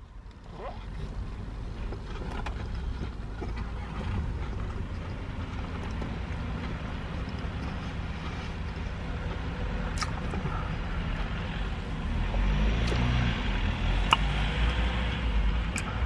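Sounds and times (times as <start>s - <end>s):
low vehicle rumble: 0.0s - 16.0s
person chewing food: 4.2s - 8.9s, 9.9s - 10.5s
mouth clicks: 9.9s - 10.4s, 14.0s - 14.8s, 15.6s - 16.0s.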